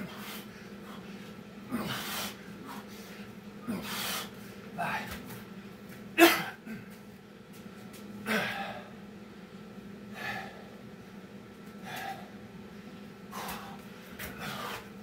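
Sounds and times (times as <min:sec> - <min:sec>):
person breathing hard: 0:00.0 - 0:05.2, 0:08.3 - 0:09.0, 0:10.1 - 0:10.8, 0:11.8 - 0:12.4, 0:13.3 - 0:15.0
faint steady hum: 0:00.0 - 0:15.0.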